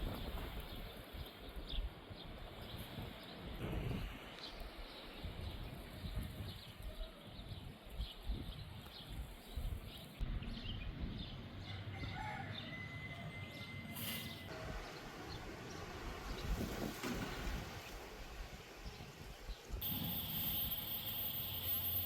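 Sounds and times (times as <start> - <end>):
wind gusting over microphone: 0.0 - 12.1, 14.3 - 20.9
thin whistle-like tone: 19.8 - 22.0.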